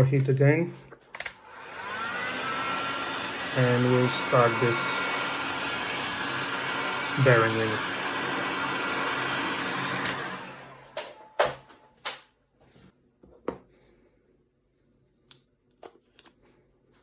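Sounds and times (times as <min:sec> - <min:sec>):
heat gun blowing and winding down: 0:01.2 - 0:11.2.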